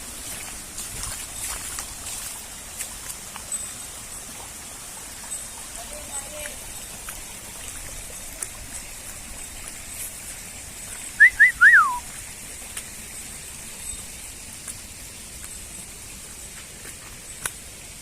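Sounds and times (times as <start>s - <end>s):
faint outdoor hiss: 0.0s - 18.0s
whistled notes: 11.2s - 12.1s.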